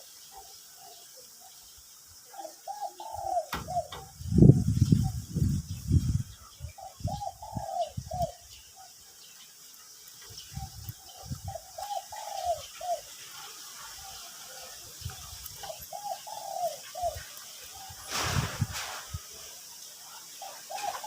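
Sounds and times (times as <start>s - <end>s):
dove cooing: 2.2s - 4.2s, 6.7s - 8.4s, 10.5s - 13.2s, 15.6s - 19.0s, 20.4s - 21.0s
dull low thumps: 3.5s - 6.3s.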